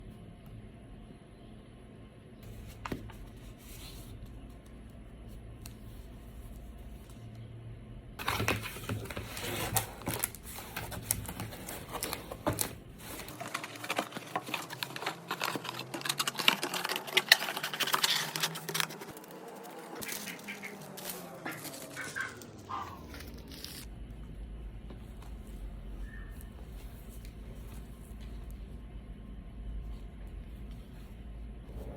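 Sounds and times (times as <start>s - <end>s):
paper rustling and crinkling: 2.4s - 4.7s, 8.2s - 23.9s, 25.0s - 28.8s.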